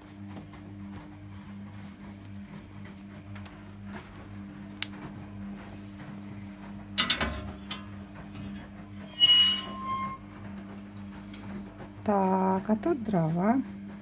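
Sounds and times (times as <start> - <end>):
steady low hum: 0.0 - 14.0
ringing metallic clatter: 9.1 - 10.2.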